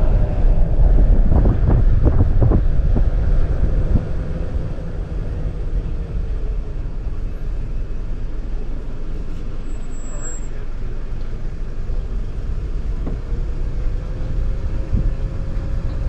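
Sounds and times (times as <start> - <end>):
wind buffeting microphone: 0.0 - 6.7, 14.0 - 16.0.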